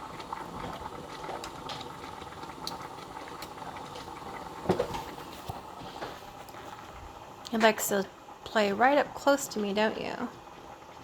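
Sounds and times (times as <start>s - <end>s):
pot simmering and bubbling: 0.0s - 11.0s.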